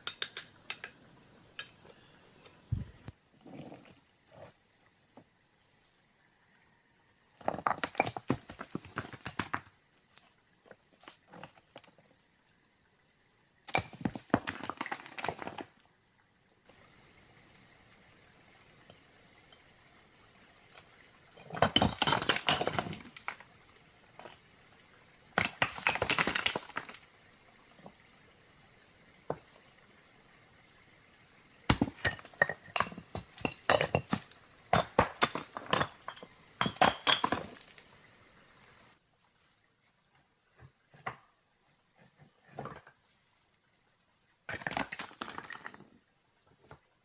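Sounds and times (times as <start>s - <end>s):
hard objects clinking and knocking: 31.7s - 37.7s.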